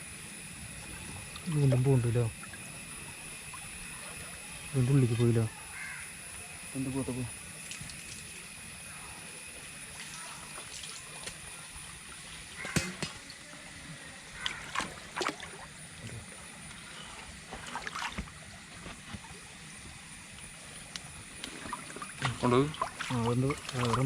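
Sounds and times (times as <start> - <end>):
hiss of moving water: 0.0 - 24.0
water sloshing and splashing: 9.9 - 13.6, 14.3 - 24.0.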